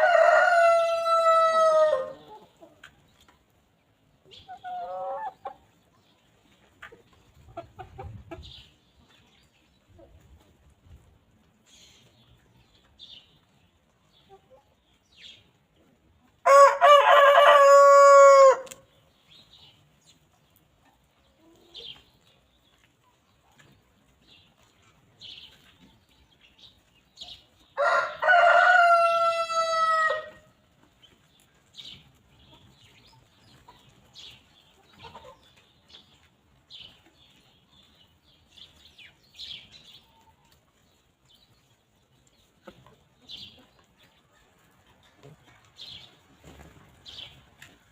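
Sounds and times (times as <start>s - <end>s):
rooster crowing: 0.0s - 2.2s, 16.5s - 18.7s, 27.8s - 30.4s
faint hen clucks: 4.2s - 9.3s, 32.4s - 36.3s.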